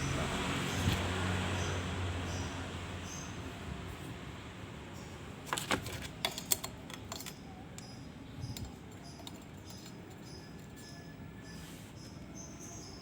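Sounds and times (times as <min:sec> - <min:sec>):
small metal parts clinking: 0:05.5 - 0:11.0.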